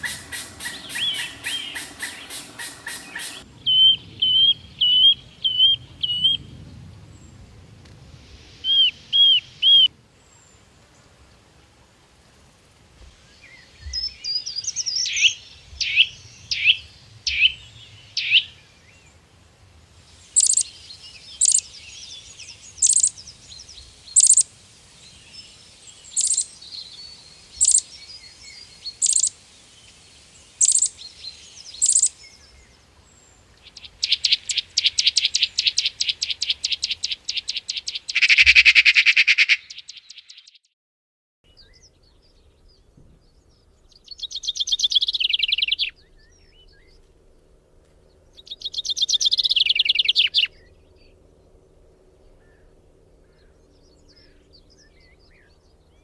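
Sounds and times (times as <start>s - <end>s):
birds calling: 0.0s - 3.5s, 48.4s - 50.7s
thin bird twitter: 0.0s - 6.4s, 20.1s - 40.7s, 41.5s - 47.1s, 48.1s - 51.2s.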